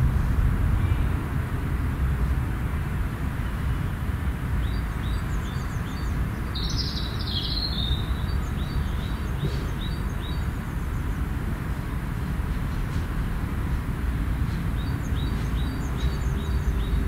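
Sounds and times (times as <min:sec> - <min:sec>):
low background rumble: 0:00.0 - 0:07.2
bird song phrase: 0:04.6 - 0:10.6, 0:14.8 - 0:17.0.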